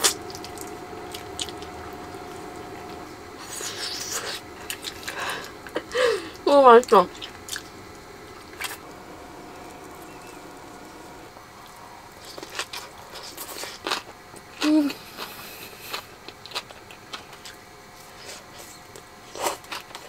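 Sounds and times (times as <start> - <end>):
chewing and mouth clicks: 12.2 - 20.0.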